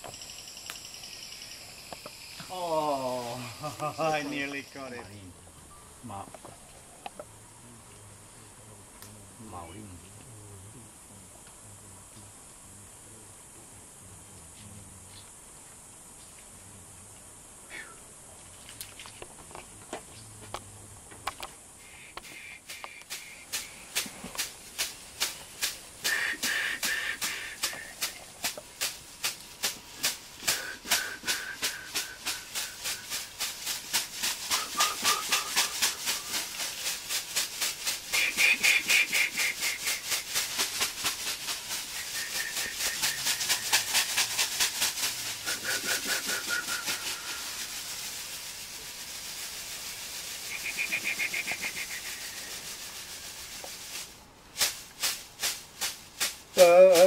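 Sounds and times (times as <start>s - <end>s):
rattle shaken rhythmically: 0.0s - 5.3s, 21.6s - 57.0s.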